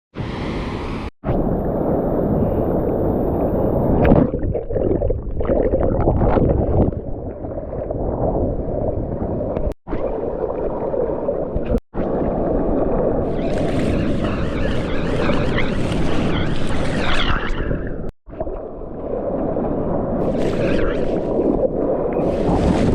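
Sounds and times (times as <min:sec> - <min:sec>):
wind noise: 0:00.2 - 0:10.2, 0:11.5 - 0:18.1, 0:19.6 - 0:22.9
muffled water churning underwater: 0:00.2 - 0:22.9
surf: 0:09.6 - 0:22.9.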